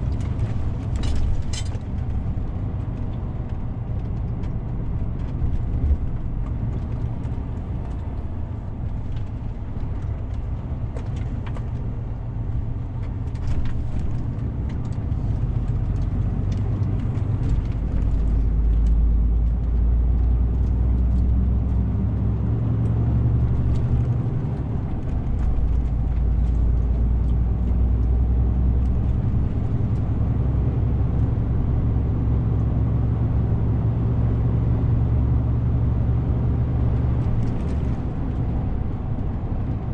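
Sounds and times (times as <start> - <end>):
clicks and rattles: 0.0 - 2.2
road noise: 0.0 - 39.9
truck diesel engine rumble: 0.0 - 39.9.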